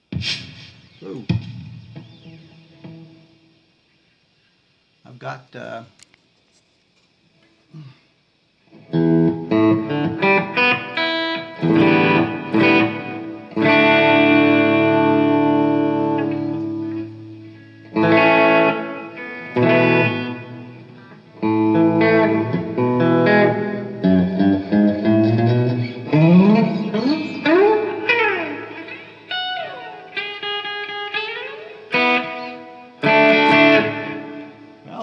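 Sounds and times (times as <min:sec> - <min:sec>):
electric guitar strummed chords: 0:00.0 - 0:03.6, 0:08.7 - 0:35.0
electric guitar single-note phrases: 0:08.7 - 0:35.0.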